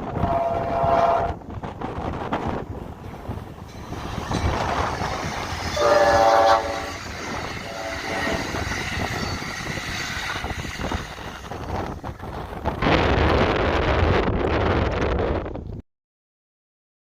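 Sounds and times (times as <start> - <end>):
train horn blasts: 0.0 - 1.4, 4.3 - 9.5
passenger train rumbling by: 0.0 - 15.8.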